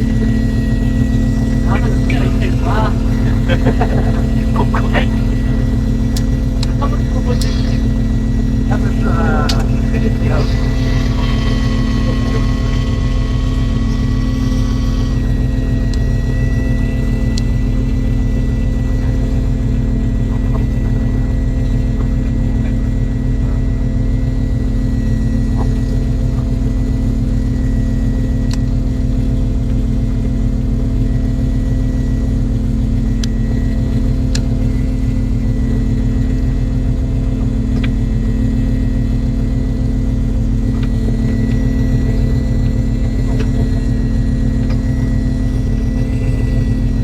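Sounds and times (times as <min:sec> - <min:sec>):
boat engine droning: 0:00.0 - 0:47.0
thin high tone: 0:07.0 - 0:17.4.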